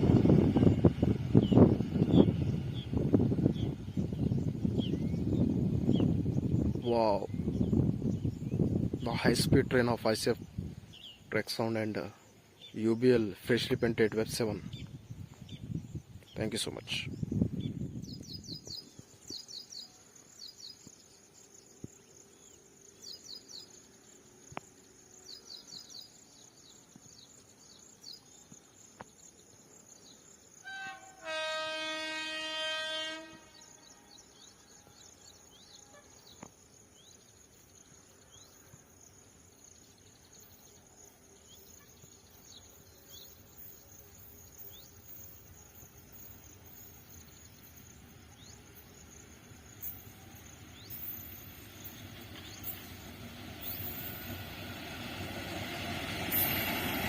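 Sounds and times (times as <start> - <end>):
small birds chirping: 0.7 - 30.5
locomotive horn: 30.6 - 35.1.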